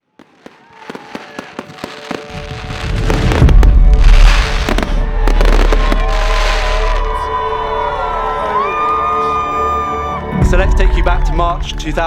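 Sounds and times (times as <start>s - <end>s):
fireworks bangs and crackles: 0.0s - 7.3s.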